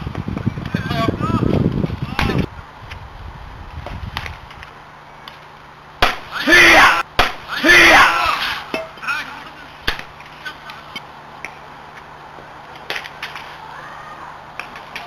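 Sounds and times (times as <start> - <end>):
person shouting: 6.3 - 7.0, 7.6 - 8.6.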